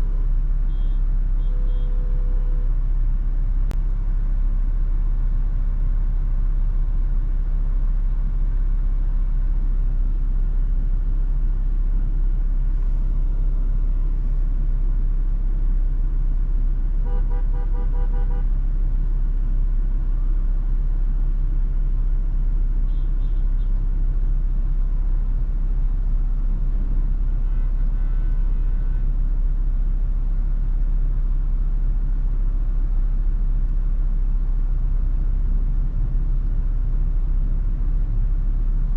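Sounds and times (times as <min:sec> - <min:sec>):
car road rumble: 0:00.0 - 0:38.9
car horn: 0:00.6 - 0:02.7, 0:17.0 - 0:18.6, 0:22.8 - 0:23.8, 0:27.3 - 0:29.2.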